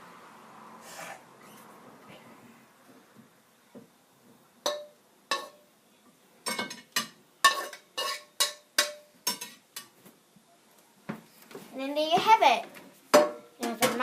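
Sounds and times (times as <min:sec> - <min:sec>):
metal utensil clinking on dish: 0:04.7 - 0:05.6, 0:06.4 - 0:09.9.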